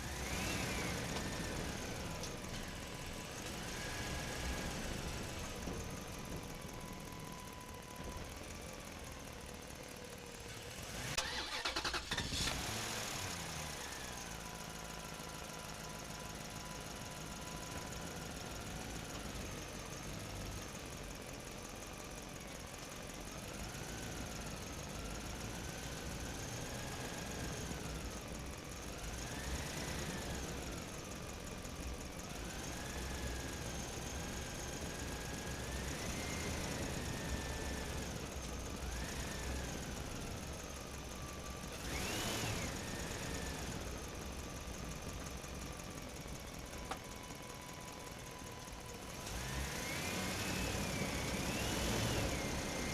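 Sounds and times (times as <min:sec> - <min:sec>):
vehicle engine revving: 0:00.0 - 0:02.1, 0:10.7 - 0:14.2, 0:41.7 - 0:44.6, 0:49.0 - 0:52.9.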